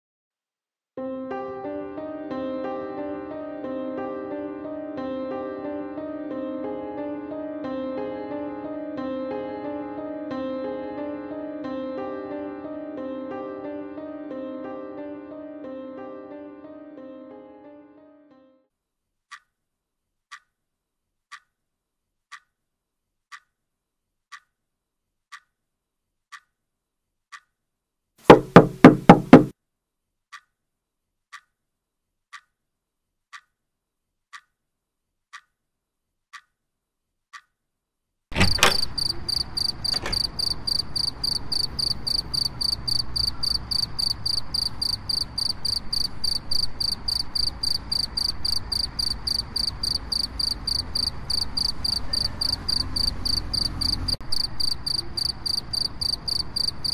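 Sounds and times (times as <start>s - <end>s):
clock ticking: 19.3s - 19.5s, 20.3s - 20.5s, 21.3s - 21.5s, 22.3s - 22.5s, 23.3s - 23.6s, 24.3s - 24.5s, 25.3s - 25.5s, 26.3s - 26.5s, 27.3s - 27.5s, 30.3s - 30.5s, 31.3s - 31.5s, 32.3s - 32.6s, 33.3s - 33.6s, 34.3s - 34.6s, 35.3s - 35.6s, 36.3s - 36.6s, 37.3s - 37.5s
rapid loud knocks: 28.3s - 29.5s
crickets chirping: 38.4s - 56.9s.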